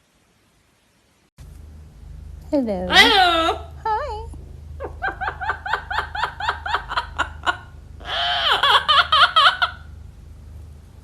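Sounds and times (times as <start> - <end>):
parrot imitating laughter: 2.9 - 3.7, 4.8 - 9.9.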